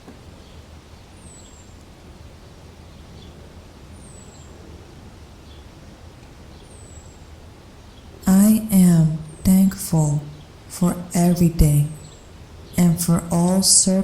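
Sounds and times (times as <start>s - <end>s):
low outdoor rumble: 8.2s - 14.0s.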